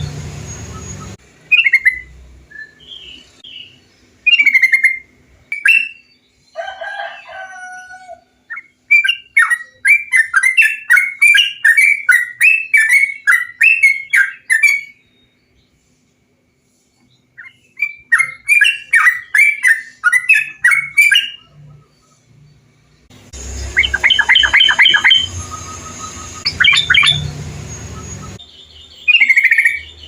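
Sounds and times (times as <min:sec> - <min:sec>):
bulbul singing: 0:00.0 - 0:06.5, 0:17.1 - 0:30.0.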